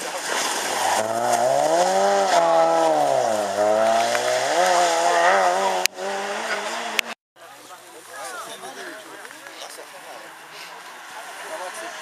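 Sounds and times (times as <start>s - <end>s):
rally car engine revving: 0.4s - 7.2s
another car engine: 0.7s - 7.2s.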